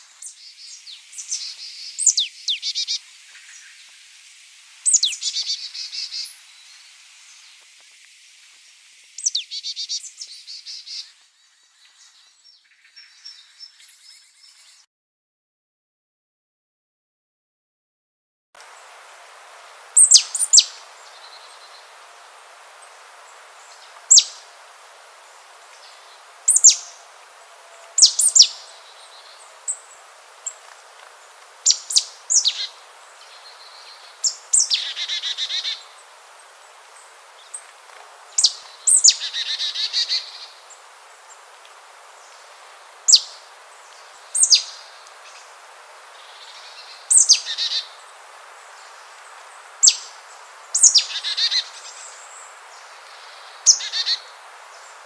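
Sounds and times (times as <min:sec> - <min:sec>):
steady background hiss: 0:00.0 - 0:14.8, 0:18.6 - 0:55.0
birds calling: 0:19.9 - 0:22.1, 0:22.7 - 0:41.5, 0:42.1 - 0:48.2, 0:48.8 - 0:55.0.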